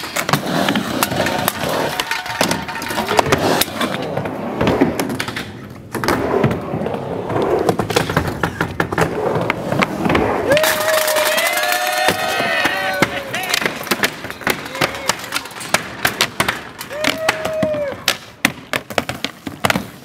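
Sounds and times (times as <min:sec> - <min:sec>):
skateboard wheels rolling: 0:00.0 - 0:20.0
skateboards clacking: 0:00.0 - 0:20.0
people's voices: 0:10.5 - 0:15.7.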